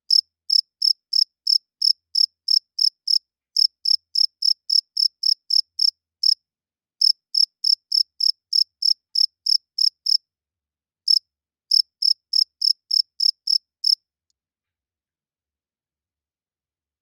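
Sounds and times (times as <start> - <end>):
cricket chirping: 0.1 - 6.4, 7.0 - 10.2, 11.1 - 14.0.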